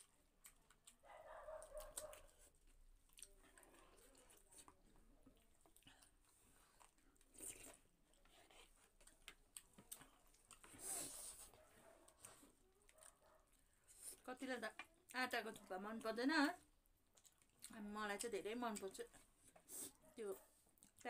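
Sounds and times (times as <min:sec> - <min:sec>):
person chewing: 0:00.0 - 0:11.5, 0:12.1 - 0:14.2, 0:16.9 - 0:17.8, 0:20.7 - 0:21.0.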